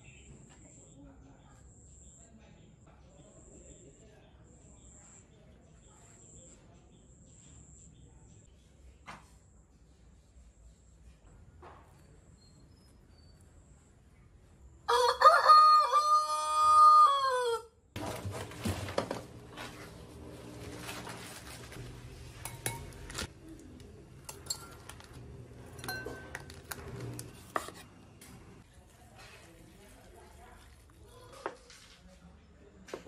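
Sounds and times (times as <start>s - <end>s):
rooster crowing: 14.9s - 17.8s
clinks and knocks: 22.4s - 23.3s, 24.2s - 27.3s.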